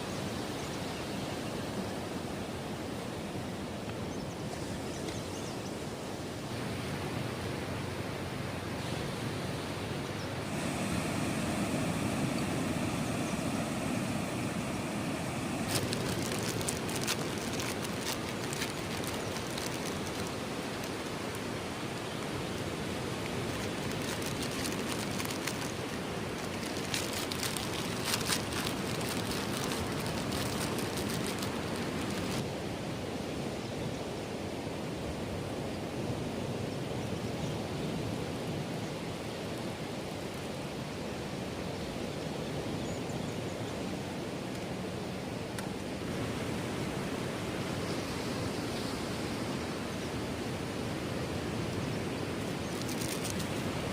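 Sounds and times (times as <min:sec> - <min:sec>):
sea surf on beach: 0:05.8 - 0:36.7, 0:43.8 - 0:53.9
light crackly ticking: 0:23.2 - 0:32.4.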